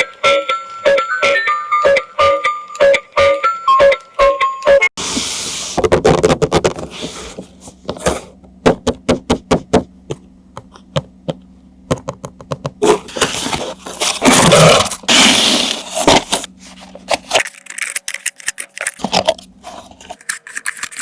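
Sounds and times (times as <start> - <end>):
packaging rustling: 13.0 - 21.0.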